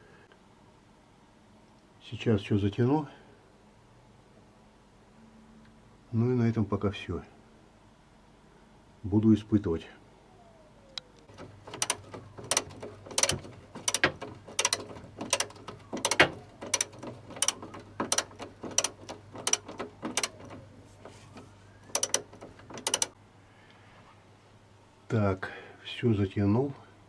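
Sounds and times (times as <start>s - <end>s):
ratchet wrench clicking: 21.9s - 22.2s.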